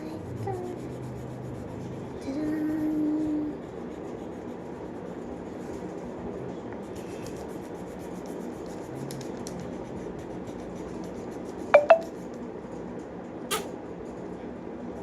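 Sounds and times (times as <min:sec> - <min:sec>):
pencil scratching on paper: 0:00.0 - 0:11.7.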